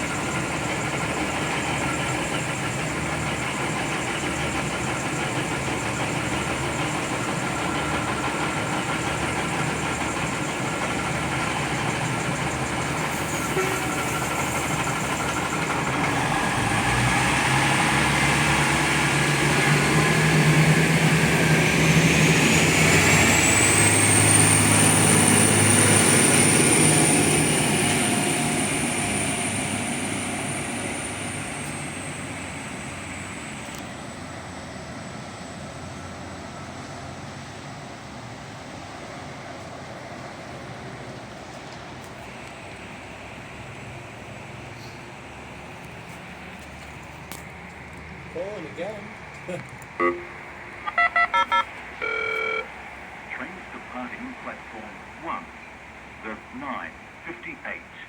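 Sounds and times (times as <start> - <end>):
diesel train passing: 0.0 - 58.0
high whine: 50.0 - 53.4.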